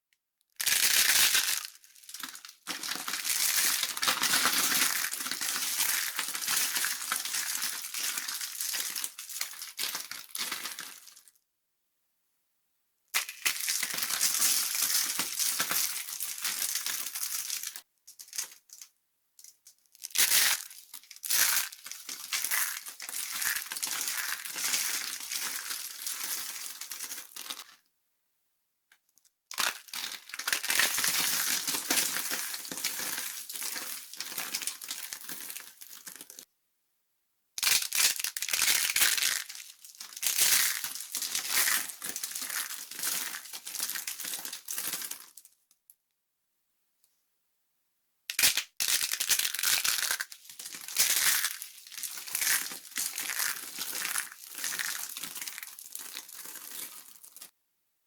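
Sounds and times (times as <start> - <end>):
dry soap crunching: 0.6 - 11.2, 20.0 - 27.8, 37.6 - 45.4, 48.3 - 57.5.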